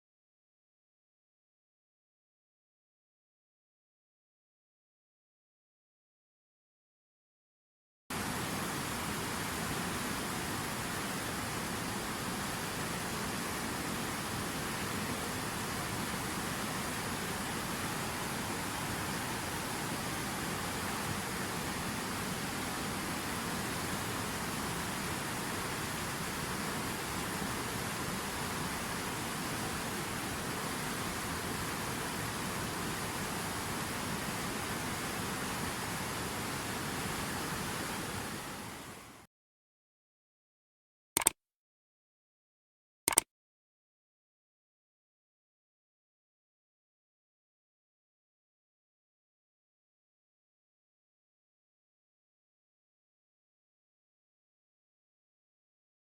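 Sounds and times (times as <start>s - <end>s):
waterfall roaring: 8.2s - 39.2s.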